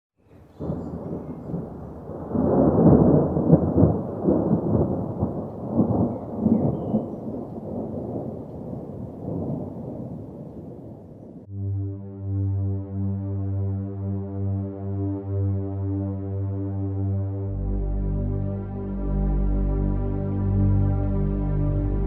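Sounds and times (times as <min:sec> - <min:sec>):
thunder rumbling: 0:00.4 - 0:11.5.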